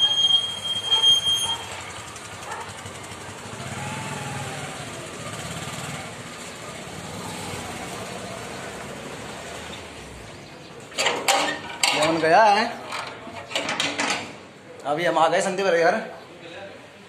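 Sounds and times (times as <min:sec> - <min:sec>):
road noise: 0:00.0 - 0:17.0
vehicle engine running: 0:01.6 - 0:10.6.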